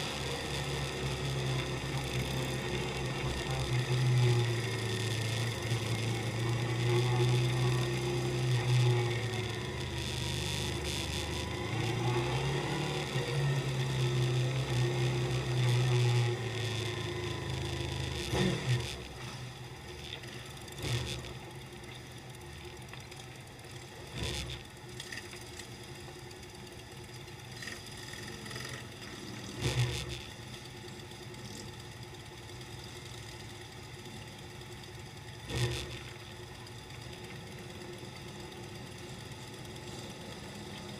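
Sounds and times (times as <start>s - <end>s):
motorcycle engine idling: 13.3s - 40.9s.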